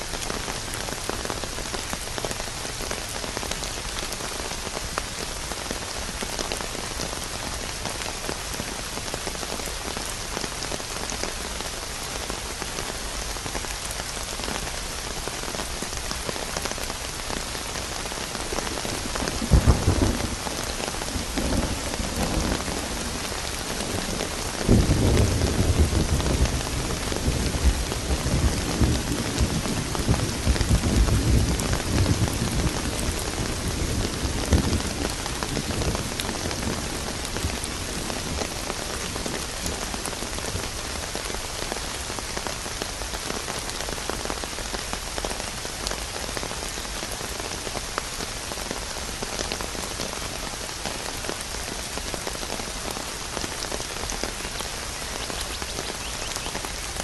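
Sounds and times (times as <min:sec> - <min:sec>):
heavy rain falling: 0:00.0 - 0:57.0
thunder rumbling: 0:19.0 - 0:38.6.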